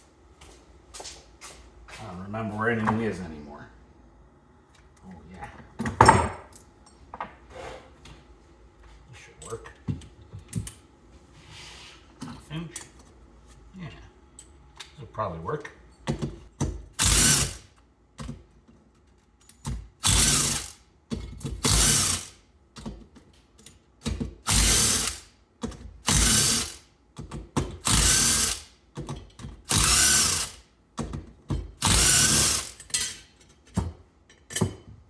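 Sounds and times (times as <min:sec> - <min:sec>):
ratchet wrench clicking: 0:17.0 - 0:17.6, 0:20.0 - 0:20.8, 0:21.6 - 0:22.4, 0:24.5 - 0:25.3, 0:26.1 - 0:26.8, 0:27.8 - 0:28.7, 0:29.7 - 0:30.6, 0:31.8 - 0:33.2.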